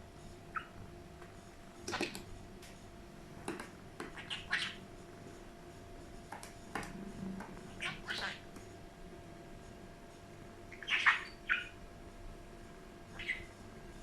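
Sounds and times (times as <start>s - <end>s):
budgerigar chirping: 0.5s - 0.8s, 4.2s - 4.8s, 7.8s - 8.4s, 10.7s - 11.8s, 13.1s - 13.5s.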